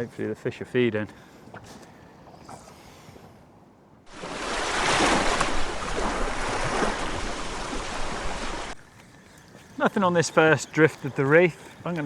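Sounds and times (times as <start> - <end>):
wind: 0.0 - 12.0
rushing sea water: 4.0 - 12.0.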